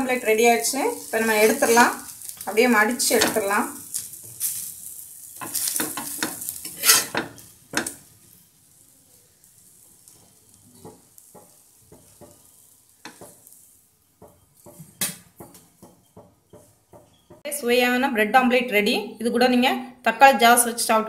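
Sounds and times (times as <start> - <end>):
omelette sizzling on a pan: 0.0 - 17.4
metal spatula scraping and tapping: 3.0 - 8.2, 9.8 - 17.4.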